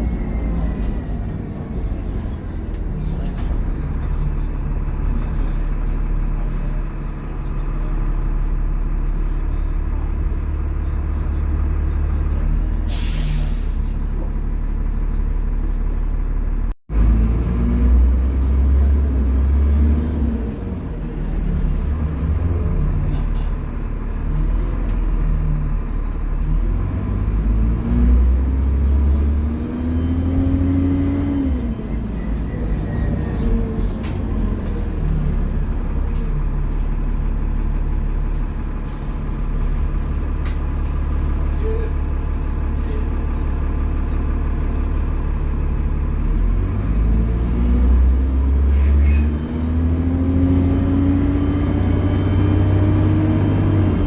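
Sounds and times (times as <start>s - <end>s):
air brake hiss: 12.9s - 14.0s
bus engine revving: 16.9s - 38.2s, 44.4s - 54.0s.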